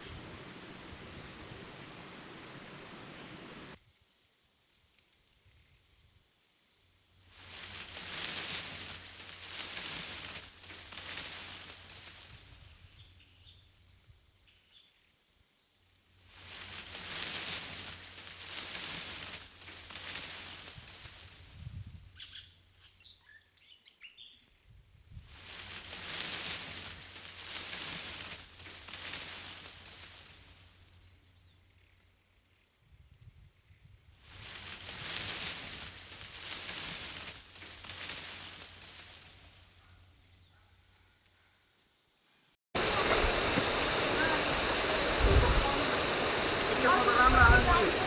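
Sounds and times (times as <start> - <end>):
broad hiss: 0.0 - 3.8, 7.3 - 12.8, 16.2 - 21.7, 25.2 - 31.0, 34.2 - 39.6, 42.8 - 48.0
high insect note: 0.0 - 3.8, 42.8 - 48.0
rushing noise: 0.0 - 3.8, 42.8 - 48.0
bird chirps: 42.8 - 48.0.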